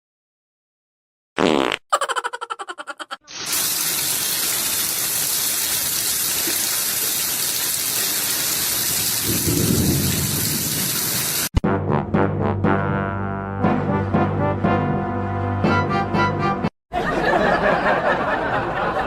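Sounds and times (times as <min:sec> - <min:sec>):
heavy rain hissing: 0:03.3 - 0:11.5
brass music: 0:11.6 - 0:16.7.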